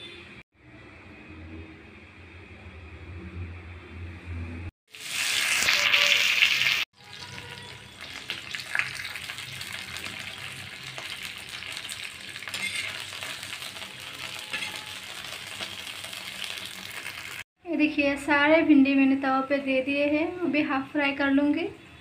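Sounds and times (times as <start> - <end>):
okra sizzling and crackling in oil: 4.9 - 17.5.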